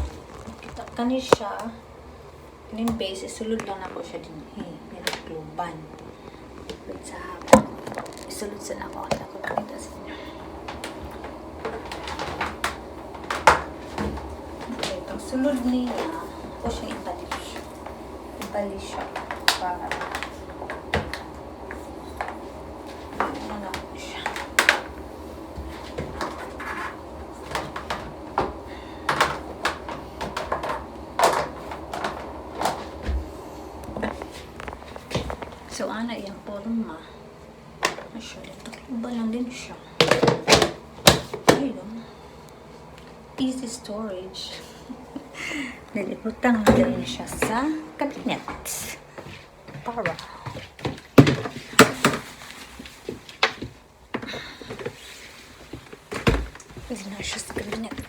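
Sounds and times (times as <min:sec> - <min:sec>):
hard plastic knocks and clatters: 0:25.6 - 0:33.3.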